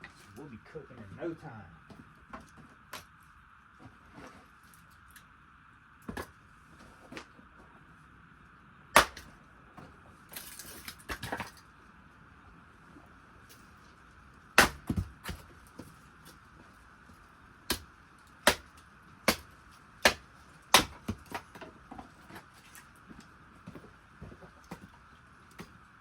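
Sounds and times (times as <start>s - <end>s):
kindling wood cracking: 9.0s - 9.3s, 17.7s - 22.9s.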